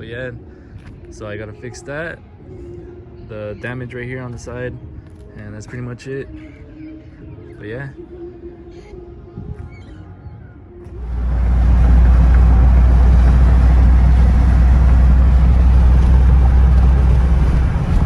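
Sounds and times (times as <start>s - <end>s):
car driving road and engine noise: 10.9s - 18.0s.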